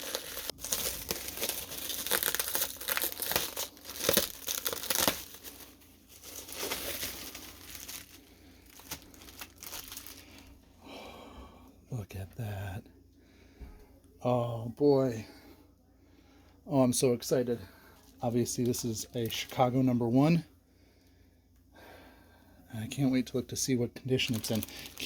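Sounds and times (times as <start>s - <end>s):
packing material crinkling: 0.0s - 10.6s, 24.1s - 25.0s.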